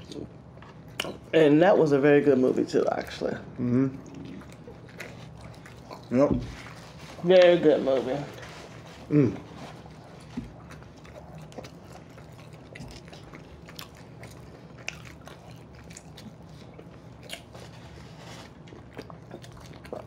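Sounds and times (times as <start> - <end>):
chewing and biting: 0.0 - 1.3, 3.9 - 20.0
faint low hum: 0.0 - 20.0.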